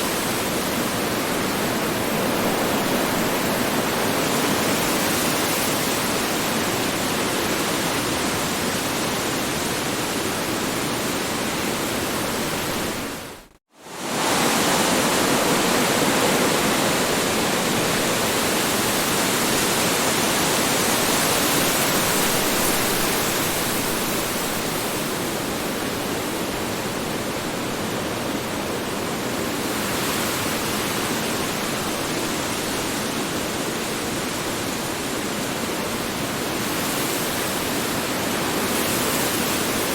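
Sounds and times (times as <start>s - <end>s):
strong wind blowing: 0.0s - 29.2s.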